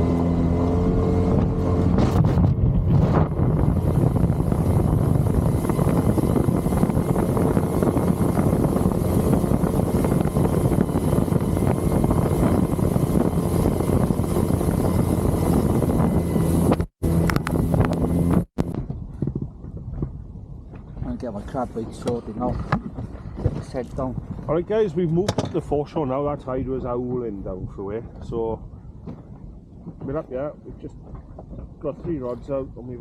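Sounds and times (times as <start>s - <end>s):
outboard motor running: 0.0s - 18.8s
wind buffeting microphone: 0.0s - 33.0s.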